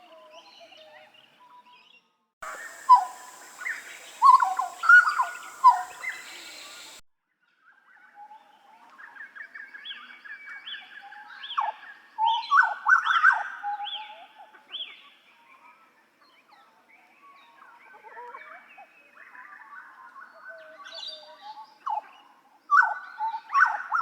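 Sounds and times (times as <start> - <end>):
bird chattering notes: 2.4 - 7.0
bird whistled notes: 2.4 - 7.0.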